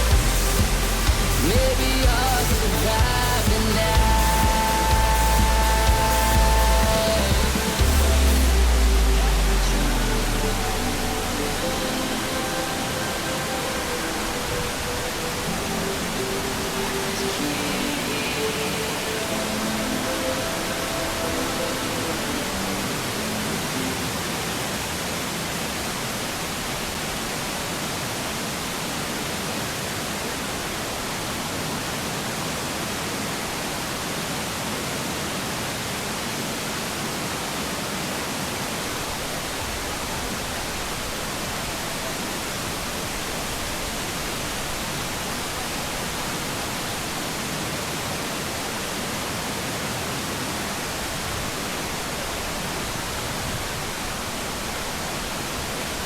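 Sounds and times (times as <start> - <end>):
faint music: 0.0 - 25.4
waterfall rushing: 0.0 - 56.0.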